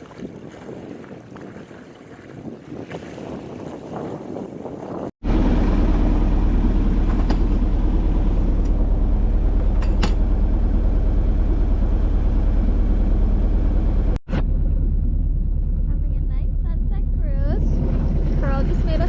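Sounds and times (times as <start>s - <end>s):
wind and water noise: 0.0s - 19.0s
boat engine droning: 5.2s - 19.0s.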